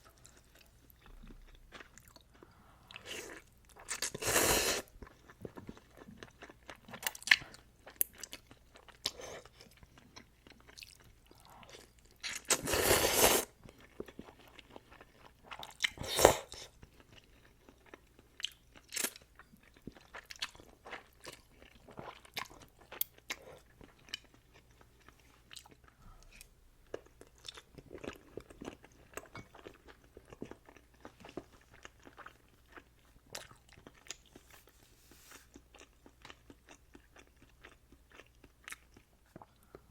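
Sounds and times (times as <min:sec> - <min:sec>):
slurping noodles: 0:04.0 - 0:04.9, 0:12.5 - 0:13.5.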